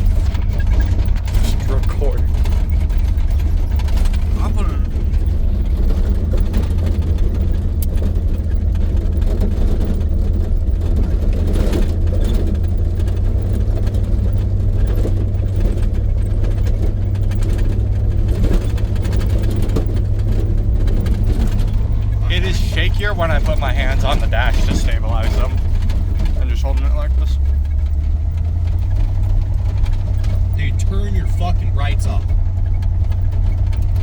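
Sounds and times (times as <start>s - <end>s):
pickup engine and road rumble: 0.0s - 34.0s.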